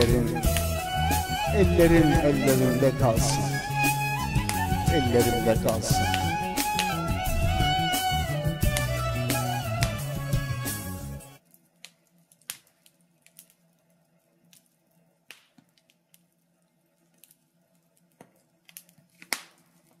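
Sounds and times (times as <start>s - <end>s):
wood fire crackling: 0.0s - 20.0s
sharp pops of fire: 0.2s - 0.8s, 3.8s - 7.8s, 8.4s - 10.2s, 11.5s - 13.6s, 14.5s - 16.4s, 18.0s - 20.0s.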